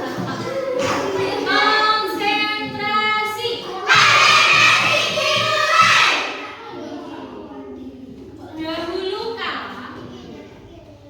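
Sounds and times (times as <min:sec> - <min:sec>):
children singing together: 0:00.0 - 0:08.6.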